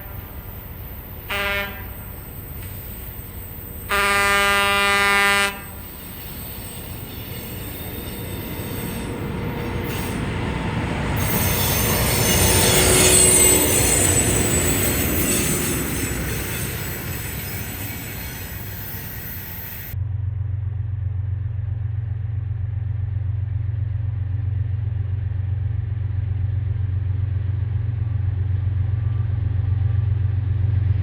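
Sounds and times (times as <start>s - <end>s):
train wheels rumbling on rails: 0.0s - 20.0s
locomotive air horn blast: 1.3s - 3.1s, 3.8s - 6.0s.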